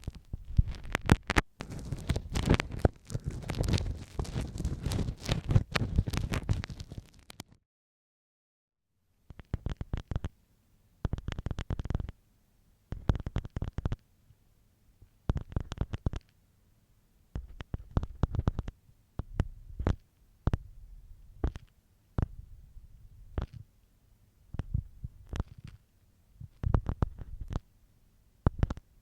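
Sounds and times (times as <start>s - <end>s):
ear pick scraping microphone: 0.0s - 7.4s, 17.4s - 20.8s, 24.5s - 25.8s, 26.4s - 27.6s.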